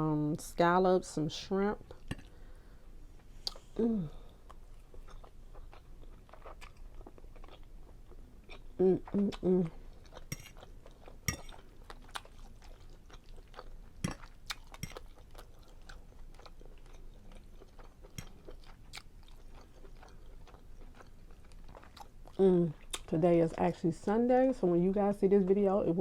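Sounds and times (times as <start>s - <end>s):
person chewing food: 3.2s - 23.1s.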